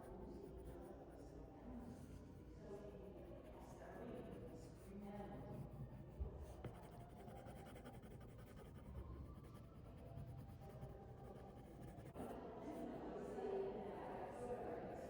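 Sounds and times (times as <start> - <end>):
pencil scratching on paper: 0.1 - 1.2, 2.4 - 12.3.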